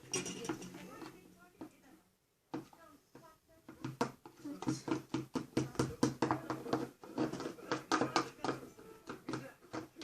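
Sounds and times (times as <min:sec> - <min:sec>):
spoon scraping and tapping bowl: 0:00.0 - 0:01.8.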